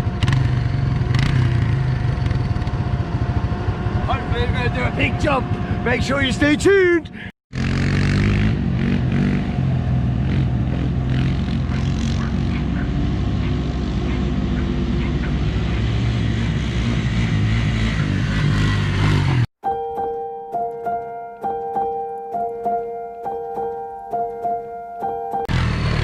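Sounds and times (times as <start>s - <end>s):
quad bike engine running: 0.0s - 6.5s, 7.5s - 19.5s, 25.5s - 26.0s.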